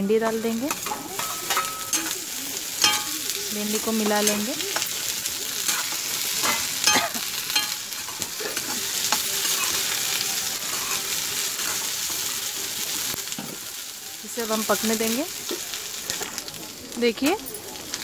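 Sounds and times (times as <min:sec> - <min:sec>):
okra sizzling in hot oil: 0:00.0 - 0:18.0
spatula scraping and clinking pan: 0:00.2 - 0:03.4, 0:04.0 - 0:12.3.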